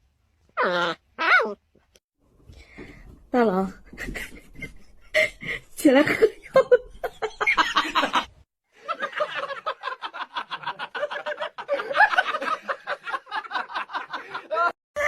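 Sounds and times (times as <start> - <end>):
person laughing breathily: 4.0 - 5.8.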